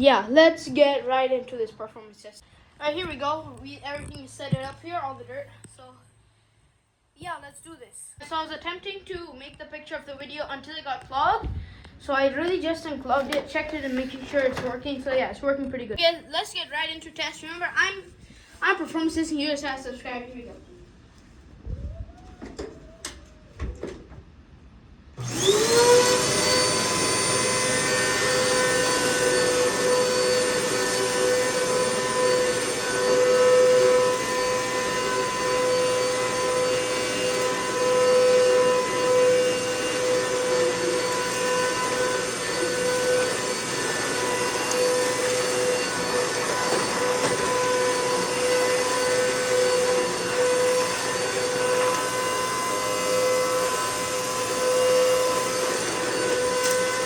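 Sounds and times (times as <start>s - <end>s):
vacuum cleaner motor whining: 25.2s - 57.0s.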